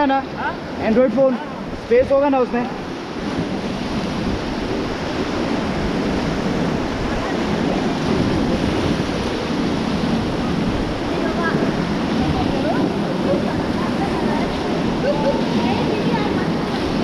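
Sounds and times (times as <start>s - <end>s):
river water rushing: 0.0s - 17.0s
wind on microphone: 0.0s - 17.0s.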